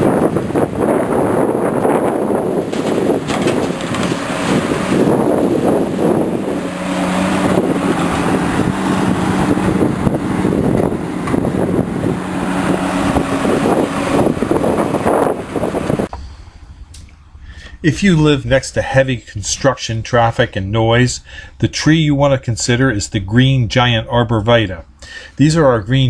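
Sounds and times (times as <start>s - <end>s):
excavator diesel engine under load: 0.0s - 16.1s.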